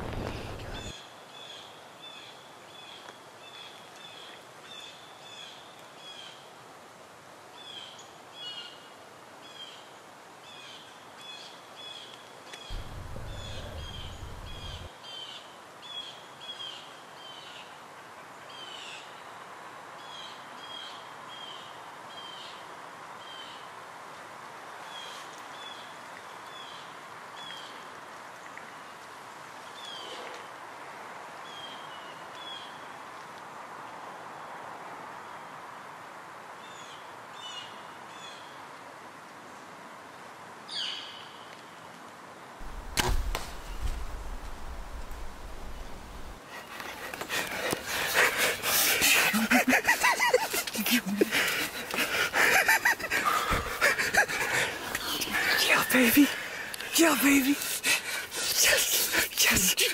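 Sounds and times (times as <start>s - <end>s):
faint steady hum: 0.0s - 0.9s, 12.7s - 14.9s, 42.6s - 46.4s
bird chirping: 12.7s - 14.9s
low rumble: 12.7s - 14.9s, 42.6s - 46.4s.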